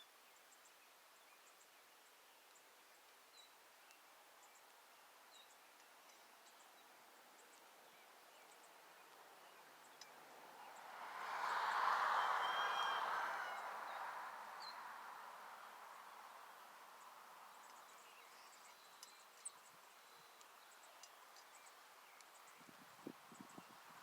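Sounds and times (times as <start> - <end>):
small birds chirping: 0.0 - 24.0
broad rushing noise: 10.3 - 16.6.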